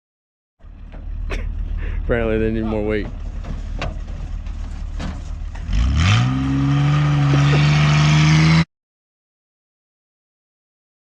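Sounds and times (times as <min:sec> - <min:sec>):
truck engine revving: 0:00.6 - 0:08.7.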